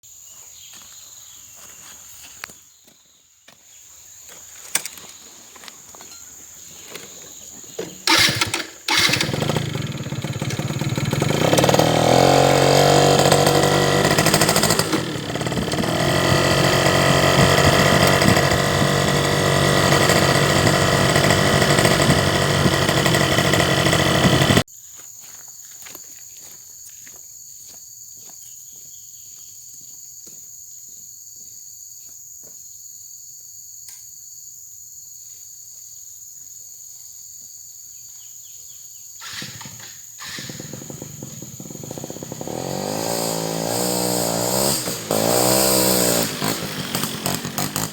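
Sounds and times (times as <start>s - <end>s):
small engine running: 8.0s - 24.7s, 39.2s - 47.9s.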